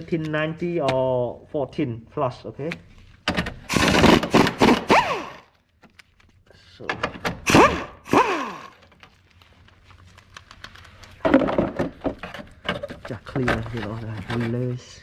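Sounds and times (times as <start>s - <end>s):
clunks and knocks of car parts: 3.2s - 4.9s, 6.9s - 7.5s, 11.2s - 13.8s.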